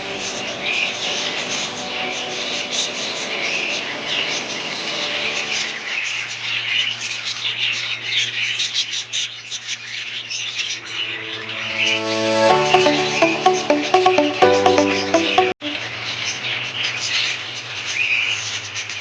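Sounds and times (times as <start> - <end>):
music: 11.1 - 15.8.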